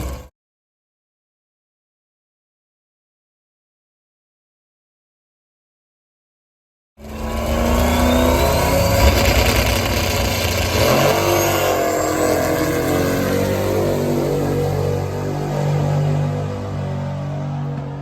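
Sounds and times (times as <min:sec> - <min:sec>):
drag car engine accelerating: 0:00.0 - 0:00.3, 0:07.0 - 0:18.0
thin whine rising in pitch: 0:07.0 - 0:16.5.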